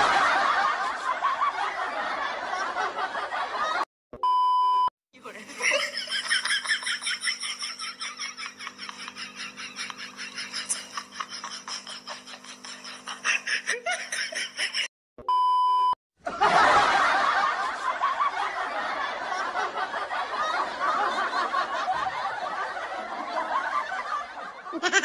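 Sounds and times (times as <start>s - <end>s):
short beep tone: 4.2s - 4.9s, 15.2s - 16.0s
woman laughing: 5.2s - 14.9s, 24.7s - 25.0s.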